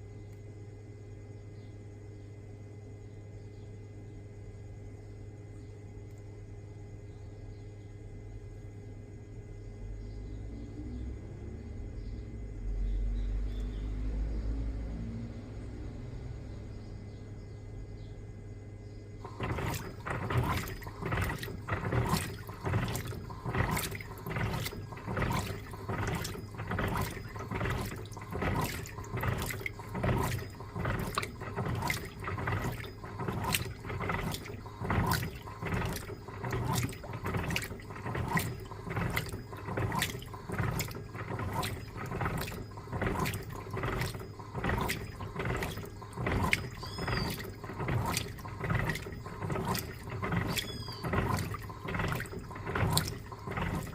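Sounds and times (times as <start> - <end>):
washing machine motor hum: 0.0 - 53.9
washing machine water sloshing: 19.2 - 53.9.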